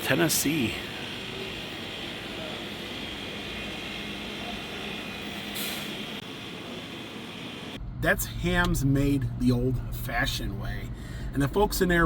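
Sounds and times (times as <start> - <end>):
vehicle rumble and hiss: 0.0 - 12.0.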